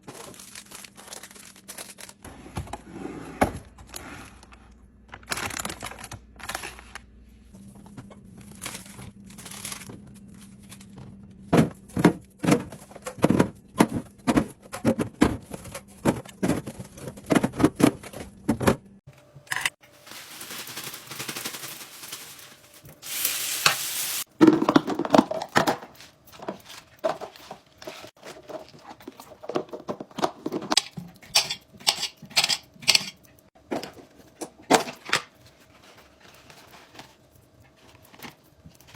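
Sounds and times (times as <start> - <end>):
containers clicking and knocking: 24.3 - 35.2.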